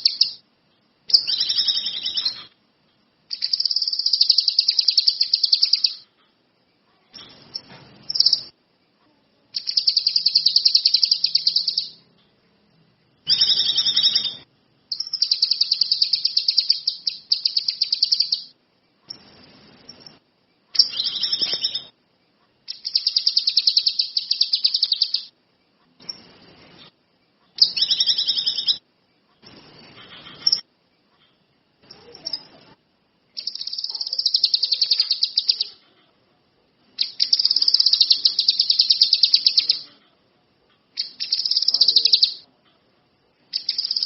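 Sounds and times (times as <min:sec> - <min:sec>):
songbird singing high trills: 0:00.0 - 0:00.4, 0:01.1 - 0:02.5, 0:03.3 - 0:06.0, 0:09.6 - 0:12.0, 0:13.3 - 0:18.5, 0:20.8 - 0:22.0, 0:22.7 - 0:25.3, 0:27.6 - 0:28.8, 0:33.4 - 0:35.8, 0:37.0 - 0:39.9, 0:41.0 - 0:42.4, 0:43.6 - 0:44.0.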